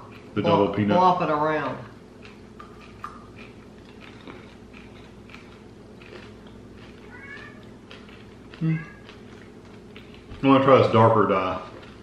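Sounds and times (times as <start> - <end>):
chewing crunchy candy: 0.0 - 0.9, 1.5 - 12.0.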